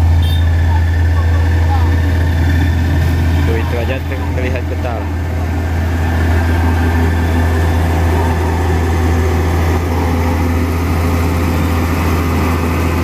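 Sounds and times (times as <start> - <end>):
road roller diesel engine droning: 0.0 - 13.0.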